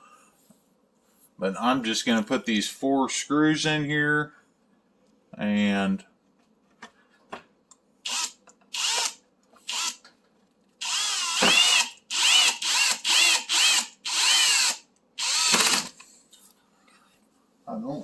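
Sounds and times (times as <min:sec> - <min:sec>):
power drill driving screws: 0:08.1 - 0:10.0, 0:10.8 - 0:16.0.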